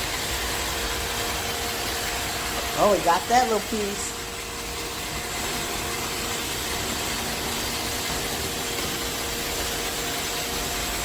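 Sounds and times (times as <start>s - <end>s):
robot vacuum running: 0.0s - 11.0s.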